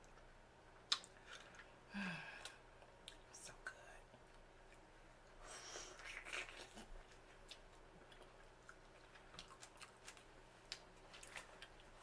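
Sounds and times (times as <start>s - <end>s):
wet mouth clicks: 0.9s - 1.2s
close chewing: 5.9s - 12.0s.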